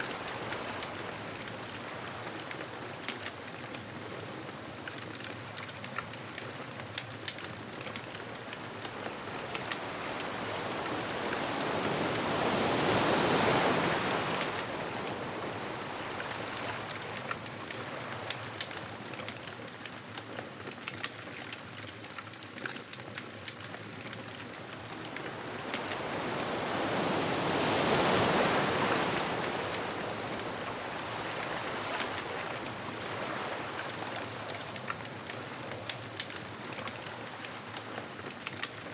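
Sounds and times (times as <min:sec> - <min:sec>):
bonfire crackling: 0:00.2 - 0:38.9
ocean waves breaking: 0:07.6 - 0:19.2, 0:24.4 - 0:38.8.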